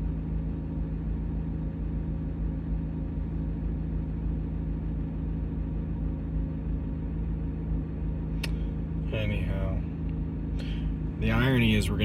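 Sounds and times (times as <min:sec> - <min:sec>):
car engine droning: 0:00.0 - 0:12.0
sharp click: 0:08.4 - 0:08.6.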